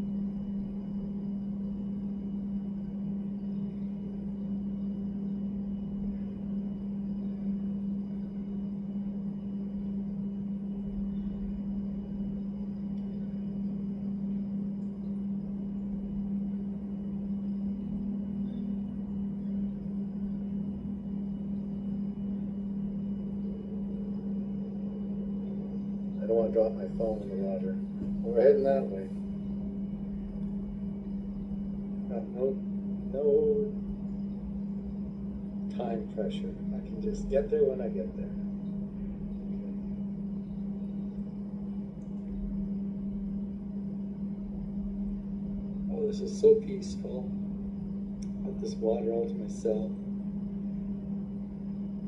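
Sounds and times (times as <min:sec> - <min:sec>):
faint low rumble: 0:00.0 - 0:52.0
steady low hum: 0:00.0 - 0:52.0
person speaking: 0:26.2 - 0:29.2.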